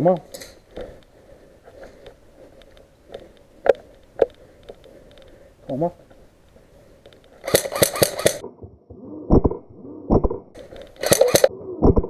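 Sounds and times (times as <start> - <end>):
airsoft gun firing bursts: 7.4 - 8.4, 11.0 - 11.5.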